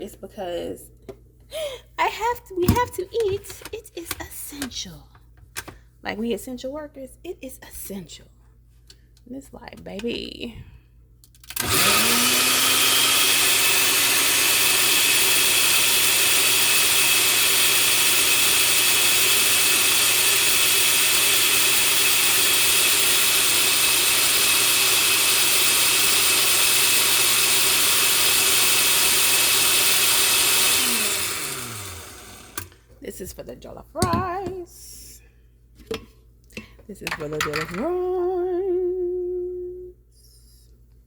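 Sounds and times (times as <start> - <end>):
blender motor running: 11.5 - 32.8.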